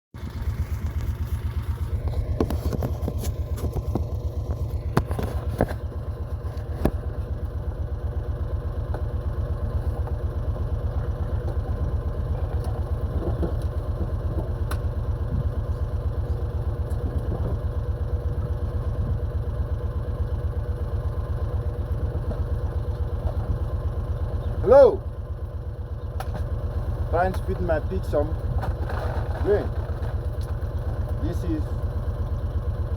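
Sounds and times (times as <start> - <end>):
vehicle engine running: 0.2 - 32.9
sharp knocks and clatters: 12.5 - 15.8.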